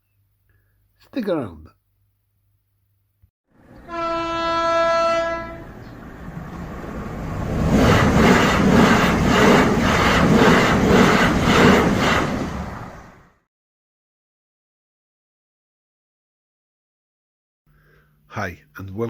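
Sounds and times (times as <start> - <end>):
train horn blast: 3.8 - 5.8
train wheels clattering over rails: 7.4 - 12.6.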